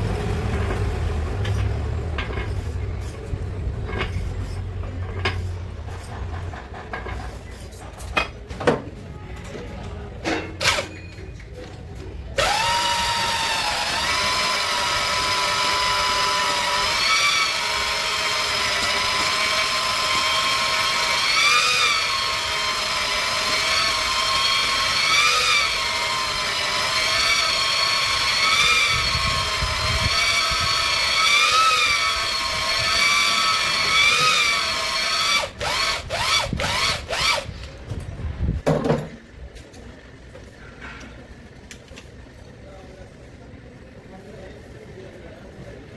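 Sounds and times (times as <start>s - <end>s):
electric drill whine: 12.4s - 37.5s.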